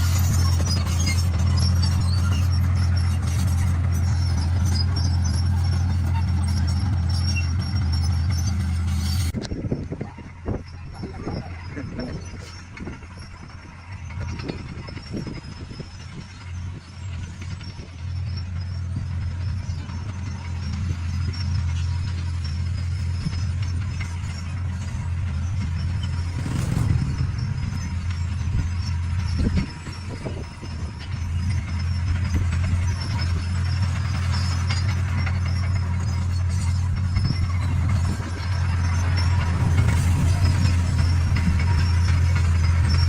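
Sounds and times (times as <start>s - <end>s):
bulldozer diesel engine: 0.0s - 43.0s
machine clatter: 19.9s - 43.0s.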